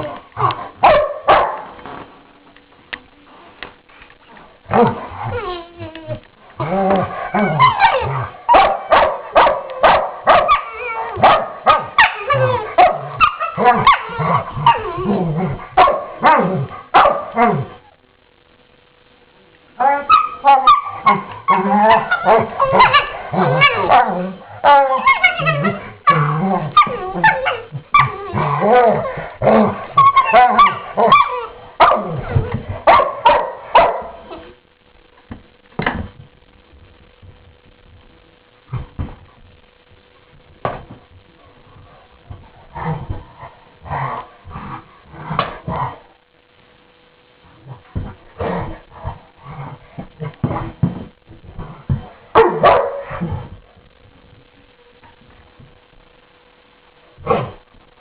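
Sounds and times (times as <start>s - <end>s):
dogs play-growling and barking: 4.7s - 17.8s, 19.8s - 34.5s, 41.5s - 46.2s, 47.4s - 53.8s.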